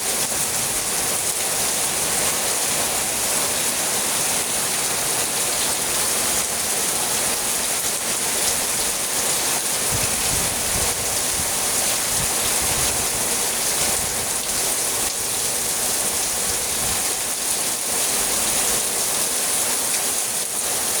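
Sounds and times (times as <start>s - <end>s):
heavy rain pouring: 0.0s - 21.0s
strong wind gusts: 9.8s - 14.4s.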